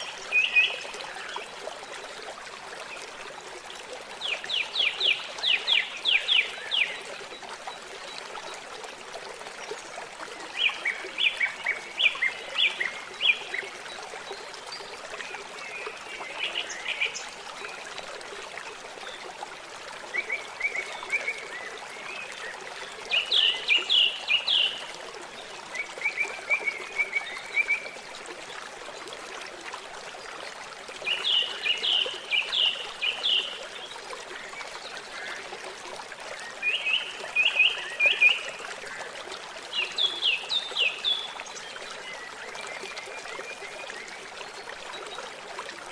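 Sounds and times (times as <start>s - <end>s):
water trickling: 0.0s - 45.9s.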